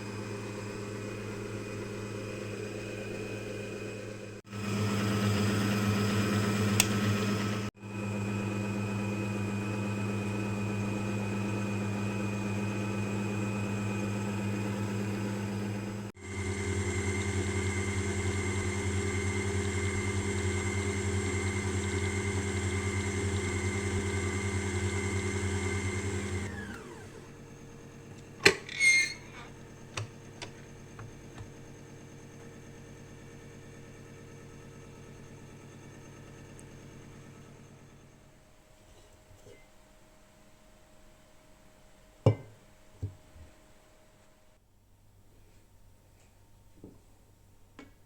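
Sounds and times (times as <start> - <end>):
electric mixer motor whining: 0.1 - 27.8.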